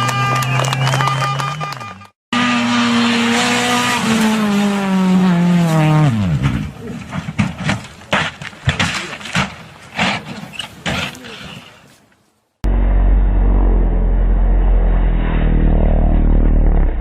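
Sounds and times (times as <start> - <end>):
rally car engine passing: 2.4 - 6.7, 12.7 - 17.0.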